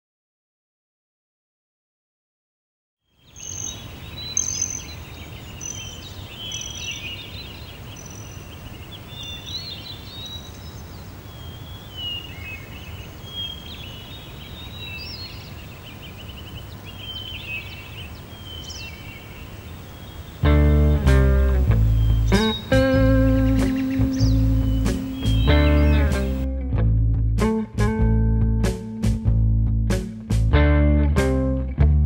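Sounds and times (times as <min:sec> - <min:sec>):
songbirds singing and chirping: 0:03.1 - 0:26.5.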